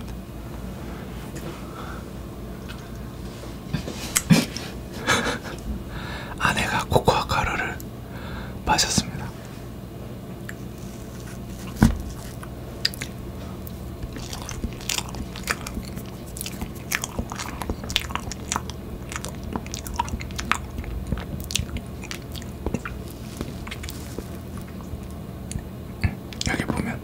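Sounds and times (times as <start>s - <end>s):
chewing with wet mouth clicks: 10.4s - 26.9s.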